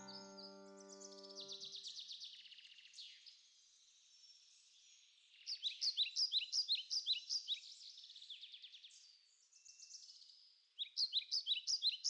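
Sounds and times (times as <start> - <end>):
fast high bird trill: 0.0 - 1.6.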